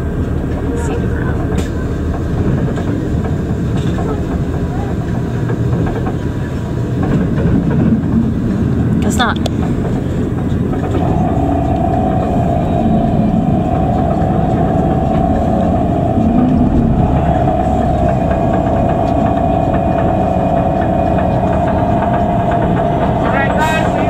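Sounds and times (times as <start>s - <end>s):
bus engine running: 0.0s - 24.0s
steady whine: 0.0s - 24.0s.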